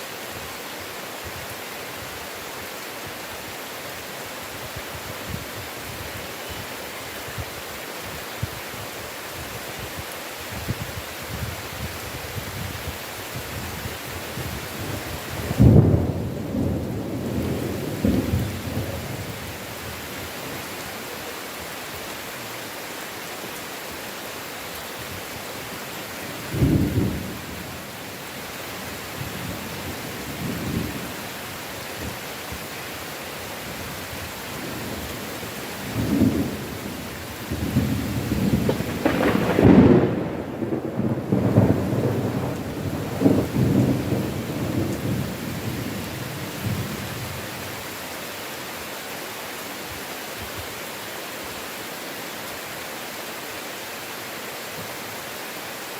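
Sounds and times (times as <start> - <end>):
heavy rain: 0.0 - 55.9
rolling thunder: 14.4 - 19.6, 26.4 - 27.7, 35.8 - 47.3.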